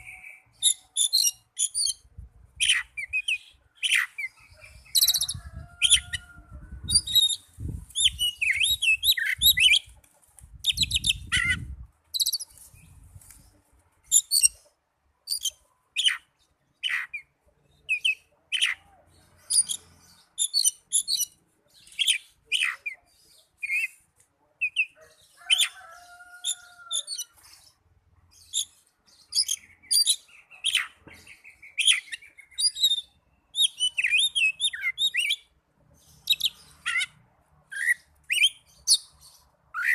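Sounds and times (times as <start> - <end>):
bird song chirps and whistles: 6.8 - 9.8, 10.6 - 12.5, 20.4 - 22.9, 28.4 - 35.5, 37.7 - 39.9.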